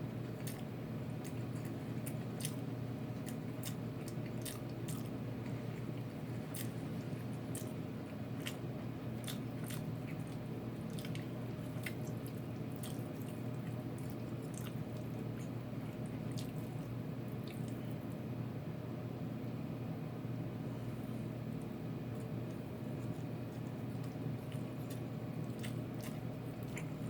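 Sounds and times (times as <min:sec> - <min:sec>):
crunching while chewing: 0:00.0 - 0:18.2, 0:20.8 - 0:27.0
steady low hum: 0:00.0 - 0:27.0.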